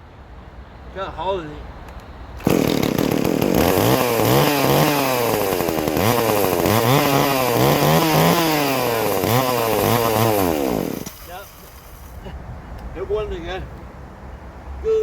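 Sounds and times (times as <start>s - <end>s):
chainsaw engine revving: 2.4s - 12.2s.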